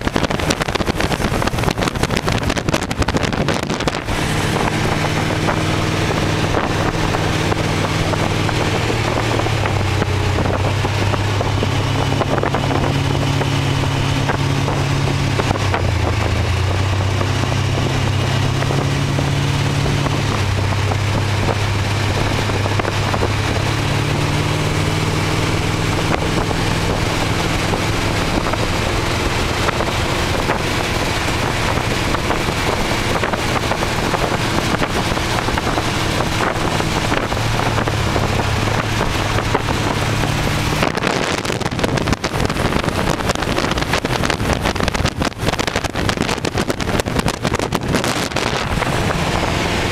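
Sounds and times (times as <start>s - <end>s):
car engine running: 0.0s - 49.9s
wind rushing over microphone: 0.0s - 49.9s.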